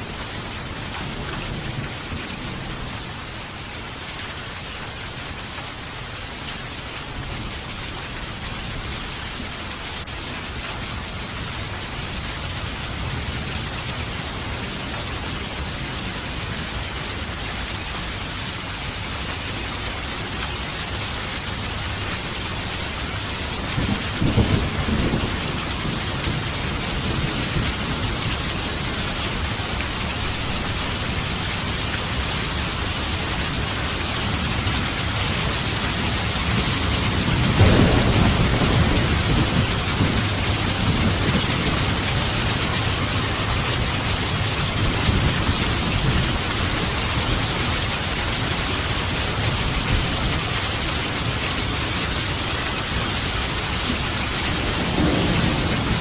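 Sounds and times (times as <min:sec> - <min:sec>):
heavy rain falling: 0:00.0 - 0:56.0
thunder rumbling: 0:23.0 - 0:50.6, 0:53.6 - 0:56.0.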